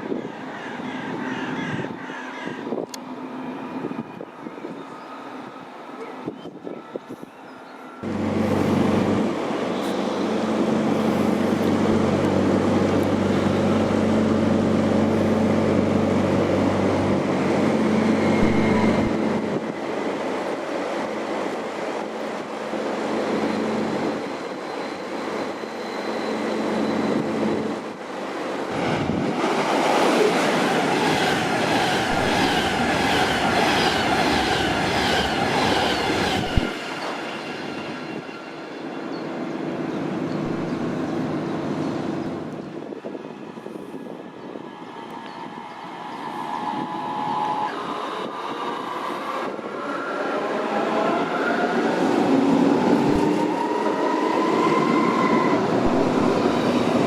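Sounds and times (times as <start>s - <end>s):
train low hum: 0.0s - 57.0s.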